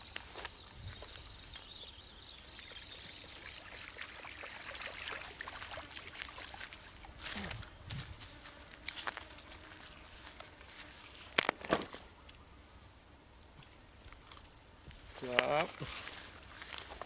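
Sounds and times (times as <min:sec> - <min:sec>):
water splashing and trickling: 0:00.7 - 0:07.7.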